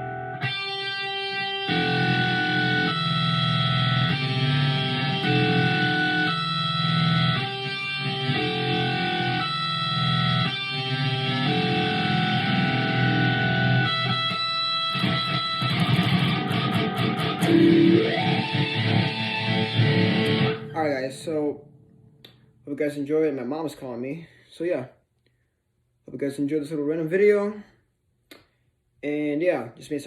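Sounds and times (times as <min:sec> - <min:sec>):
electric guitar with wah pedal: 0:00.0 - 0:21.6.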